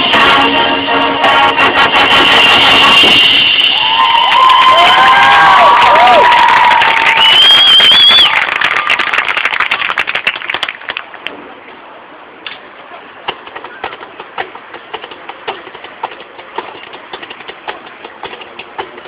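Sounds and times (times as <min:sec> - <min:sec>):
crowd cheering: 0:03.6 - 0:11.2.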